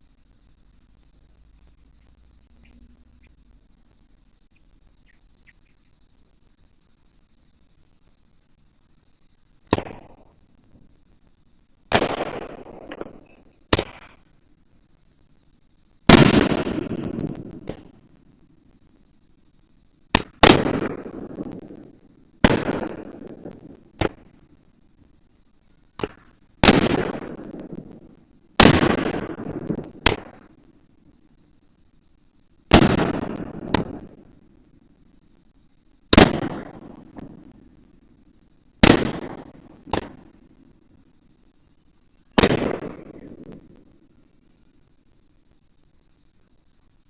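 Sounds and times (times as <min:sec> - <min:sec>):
firework second crack: 0:11.9 - 0:14.2, 0:20.1 - 0:21.8, 0:26.0 - 0:27.5, 0:28.6 - 0:30.5, 0:32.7 - 0:34.2, 0:38.8 - 0:40.3, 0:42.4 - 0:43.8
firework shells bursting: 0:16.1 - 0:18.0, 0:20.1 - 0:24.4, 0:26.0 - 0:30.6, 0:32.7 - 0:34.4, 0:36.1 - 0:37.6, 0:38.8 - 0:40.4, 0:42.3 - 0:43.9.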